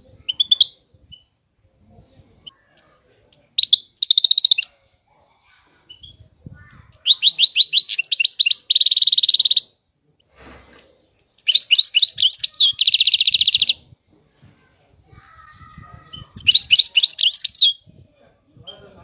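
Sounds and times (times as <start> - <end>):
goldfinch singing: 5.9 - 9.7, 11.2 - 13.8, 16.1 - 17.8.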